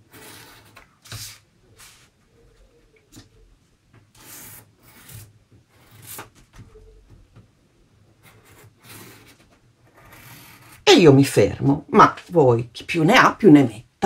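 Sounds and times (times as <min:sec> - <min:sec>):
pencil scratching on cardboard: 0:00.0 - 0:02.0, 0:04.1 - 0:06.4, 0:08.2 - 0:10.8.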